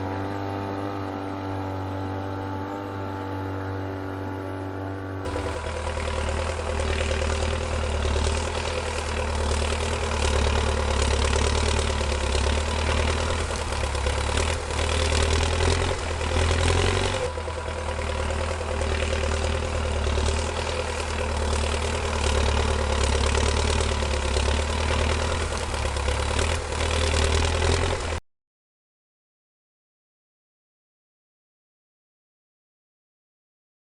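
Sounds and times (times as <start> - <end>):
tractor engine idling: 5.2 - 28.2.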